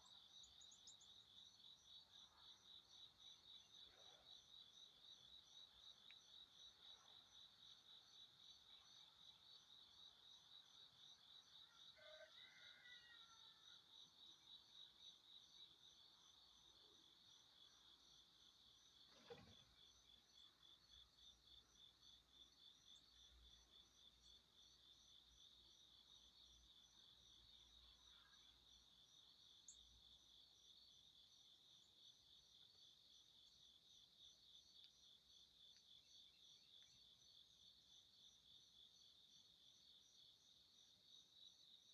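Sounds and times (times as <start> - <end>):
faint insect chirping: 0.0 - 41.9.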